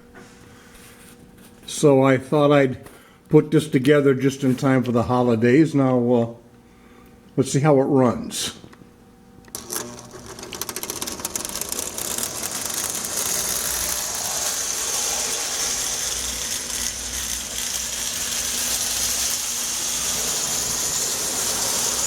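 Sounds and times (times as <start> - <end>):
toy train motor whining: 9.5 - 22.0
wheels clattering on track: 9.8 - 22.0.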